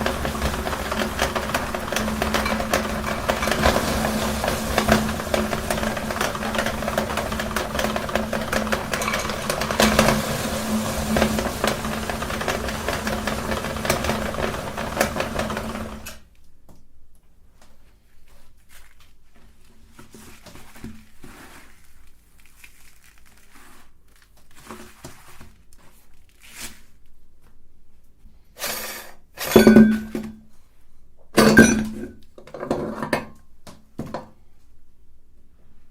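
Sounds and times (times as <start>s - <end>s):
parts clinking and knocking: 0.0s - 16.1s, 31.4s - 33.3s
meat grinder humming: 0.0s - 16.2s.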